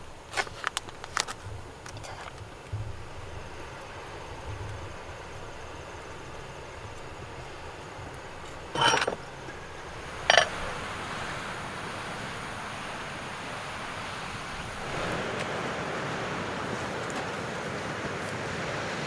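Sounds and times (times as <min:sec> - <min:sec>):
steady background hiss: 0:00.0 - 0:19.0
short sharp clinks: 0:08.8 - 0:09.3, 0:10.2 - 0:10.6.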